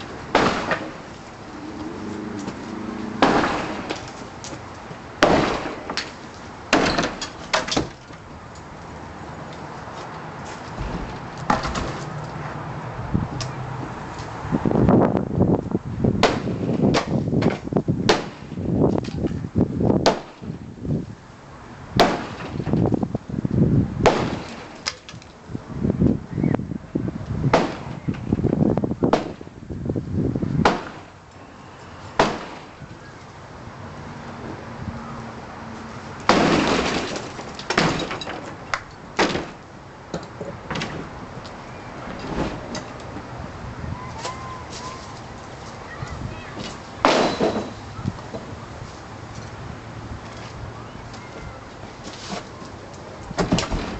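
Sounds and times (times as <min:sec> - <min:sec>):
loud sharp strikes: 0:03.2 - 0:04.0
wood breaking and clattering: 0:10.8 - 0:12.1, 0:36.2 - 0:39.6, 0:47.0 - 0:47.8, 0:53.4 - 0:53.9
crash of breaking material: 0:36.3 - 0:38.5.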